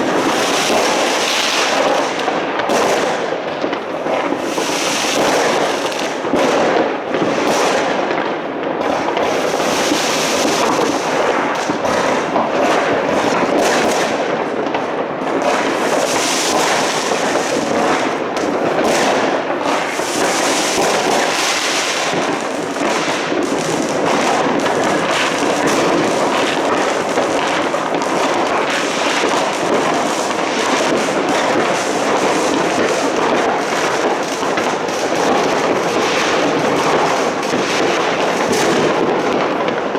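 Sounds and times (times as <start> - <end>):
fireworks and firecrackers crackling: 0.0 - 39.9.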